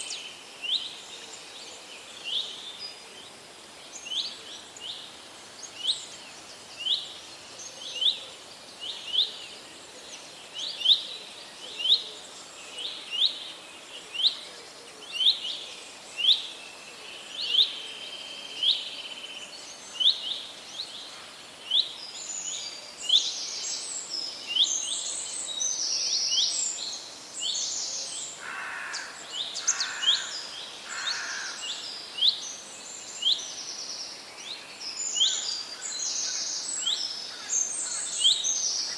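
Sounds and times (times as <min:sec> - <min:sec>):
birds with busy high calls: 0:18.6 - 0:38.9.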